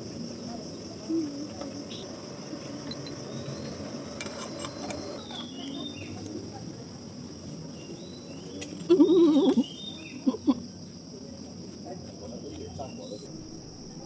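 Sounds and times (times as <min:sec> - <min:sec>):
high-pitched insect drone: 0:00.0 - 0:06.8
murmur of voices: 0:00.0 - 0:14.0
short insect chirps: 0:00.8 - 0:06.5, 0:07.7 - 0:10.6.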